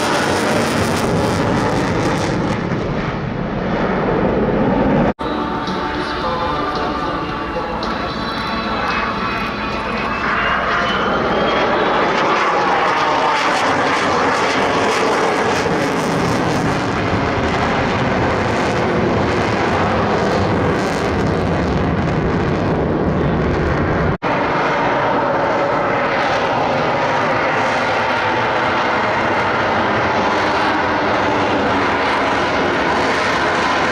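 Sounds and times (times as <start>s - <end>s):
thin rising whine: 0.0s - 14.2s
jet engine noise: 0.0s - 33.9s.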